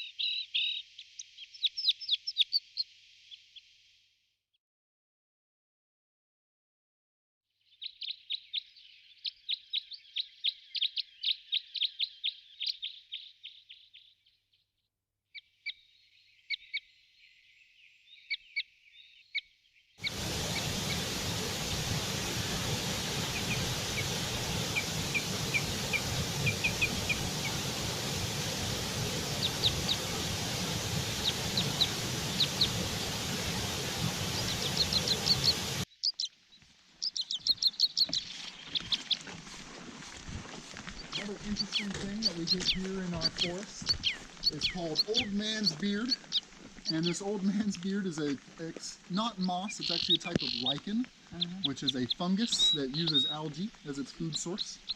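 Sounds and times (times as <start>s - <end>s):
songbirds chirping: 0.0s - 3.8s, 7.6s - 54.9s
hiss-like background noise: 20.0s - 39.3s, 40.1s - 54.9s.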